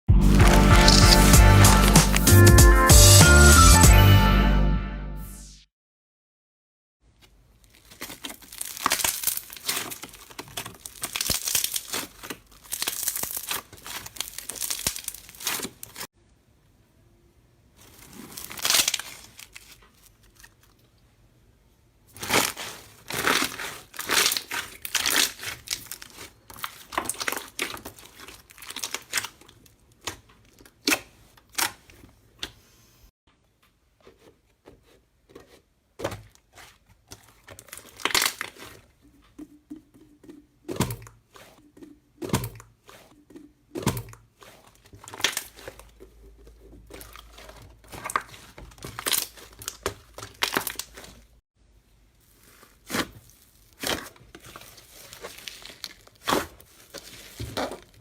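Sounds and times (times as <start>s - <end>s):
slime squeezed by hand crackling: 0.4s - 2.3s, 52.2s - 57.8s.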